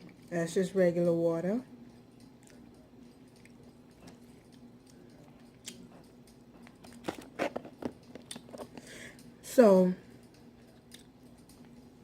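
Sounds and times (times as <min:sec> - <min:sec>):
faint steady hum: 0:00.0 - 0:12.0
eating crunches and clicks: 0:01.9 - 0:09.3.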